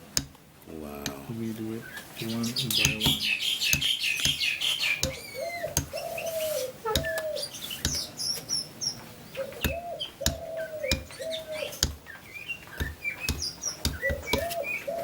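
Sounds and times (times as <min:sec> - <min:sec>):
birds chirping: 0:00.0 - 0:15.0
bird low held call: 0:01.8 - 0:15.0
mallet knocking chisel through leather: 0:07.0 - 0:07.2, 0:09.6 - 0:14.8.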